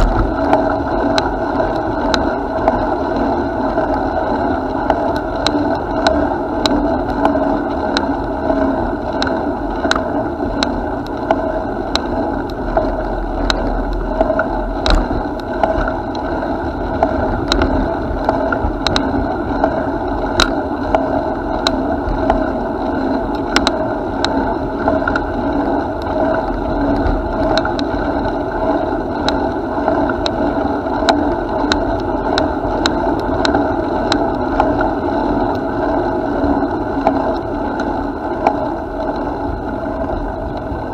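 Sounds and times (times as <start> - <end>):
bicycle clicks and rattles: 0.0 - 2.8, 9.2 - 22.4, 23.3 - 34.8.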